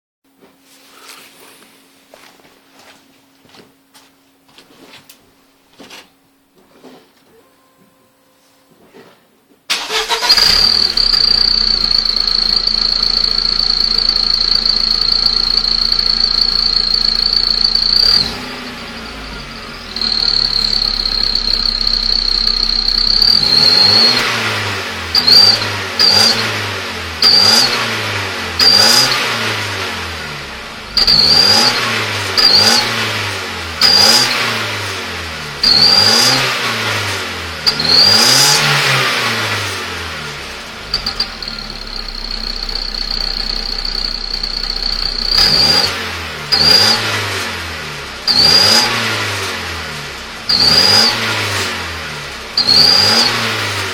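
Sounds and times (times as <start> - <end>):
car engine running: 9.7 - 34.4, 37.6 - 53.9
high exhaust whistle: 9.8 - 26.5, 40.8 - 47.1.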